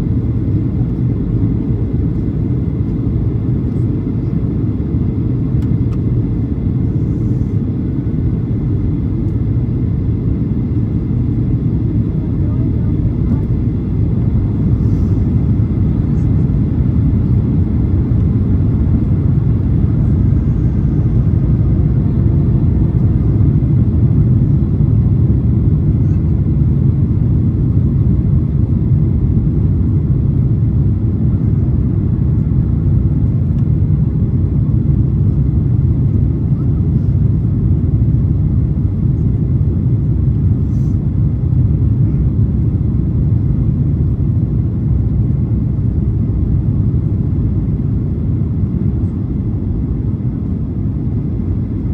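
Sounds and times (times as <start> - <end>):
airplane cabin rumble: 0.0 - 51.9.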